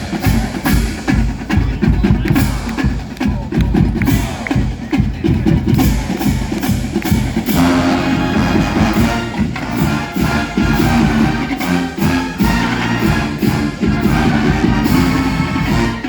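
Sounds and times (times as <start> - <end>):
marching band drums: 0.0 - 16.0
brass section held chords: 7.5 - 16.0.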